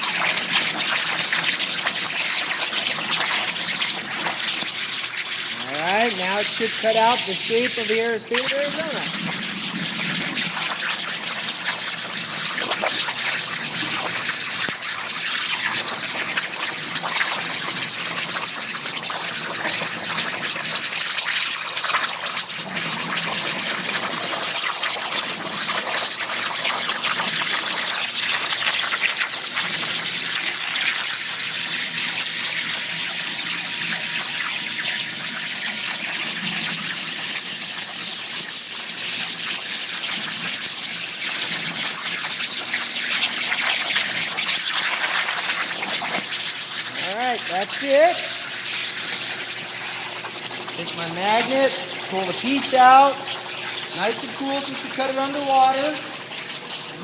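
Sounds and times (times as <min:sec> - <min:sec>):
plasma cutter hissing: 0:00.0 - 0:16.5, 0:45.3 - 0:57.0
water gushing and bubbling: 0:00.0 - 0:57.0.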